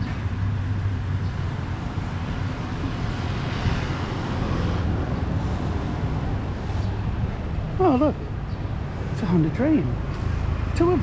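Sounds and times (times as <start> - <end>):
street traffic rumble: 0.0 - 11.0
vehicle passing by: 0.3 - 11.0.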